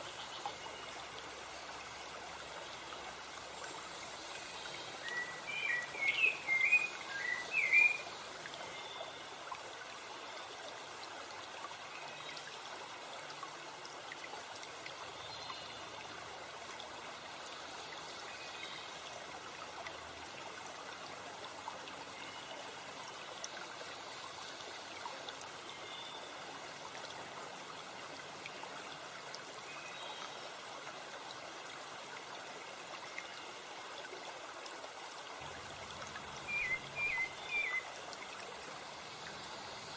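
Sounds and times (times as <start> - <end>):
stream rushing: 4.8 - 8.4, 30.8 - 39.9
songbird warbling: 36.4 - 37.8.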